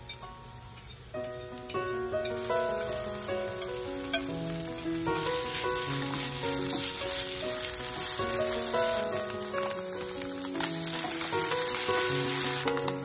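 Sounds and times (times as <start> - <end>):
food sizzling in a frying pan: 0.0 - 13.0
soft melody: 0.0 - 13.0
wooden spatula stirring: 2.8 - 12.9.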